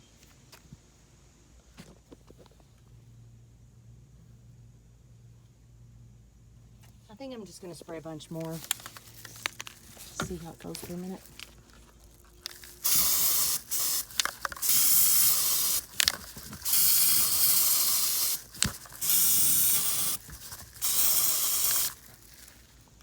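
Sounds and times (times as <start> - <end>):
aerosol can spraying hiss: 12.8 - 22.2.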